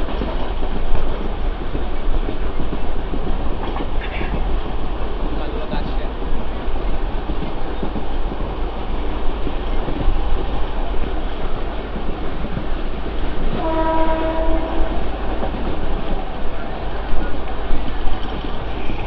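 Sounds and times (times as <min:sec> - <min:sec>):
train wheels rushing on rails: 0:00.0 - 0:19.0
train horn: 0:13.6 - 0:15.1.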